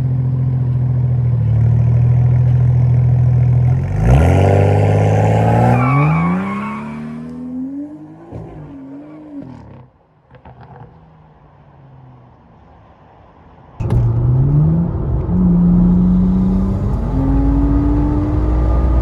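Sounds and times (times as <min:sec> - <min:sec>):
car engine accelerating hard: 0:13.8 - 0:19.0.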